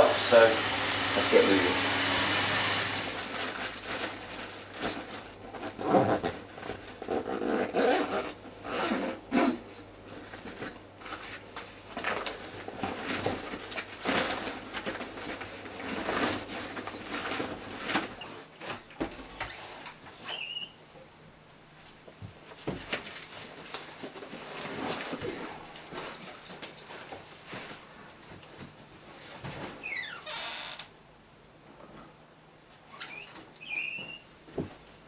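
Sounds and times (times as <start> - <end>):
rustling and knocking of packing: 3.2 - 20.0, 22.0 - 29.8, 34.4 - 35.0.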